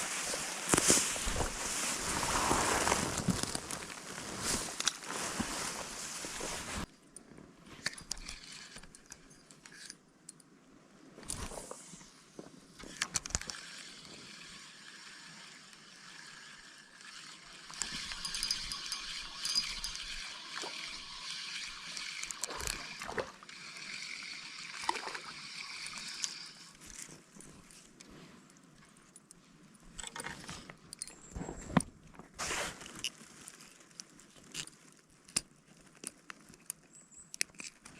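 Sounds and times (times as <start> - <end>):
rustling: 0.0 - 6.9, 26.1 - 37.9
stream water running: 13.5 - 27.3.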